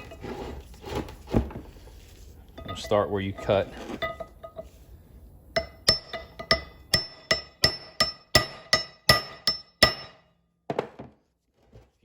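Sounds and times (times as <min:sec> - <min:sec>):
hammer striking metal: 0:05.6 - 0:10.3.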